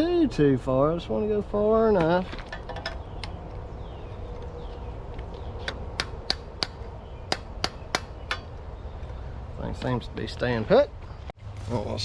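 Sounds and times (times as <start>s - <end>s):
hammer striking steel pin: 5.7s - 8.5s.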